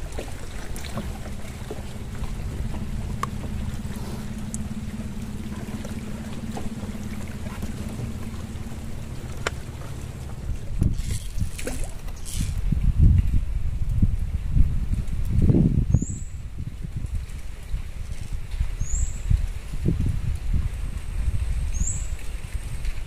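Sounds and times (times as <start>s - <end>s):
boat engine humming: 0.0s - 12.9s.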